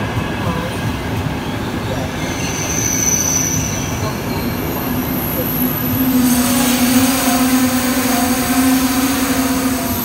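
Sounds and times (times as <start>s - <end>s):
train wheels rumbling on rail: 0.0s - 10.0s
high wheel squeal: 2.1s - 10.0s.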